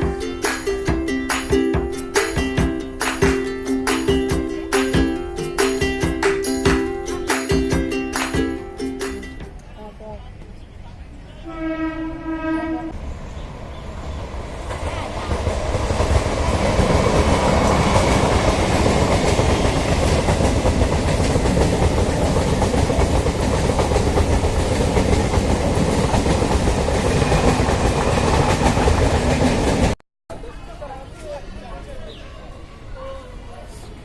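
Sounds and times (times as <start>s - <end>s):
train rumbling past: 11.2s - 30.0s
train horn: 11.4s - 13.0s.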